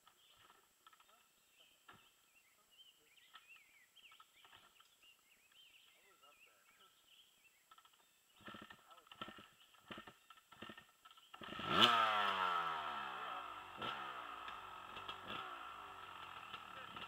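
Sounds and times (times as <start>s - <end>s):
dirt bike engine revving: 8.3s - 17.0s.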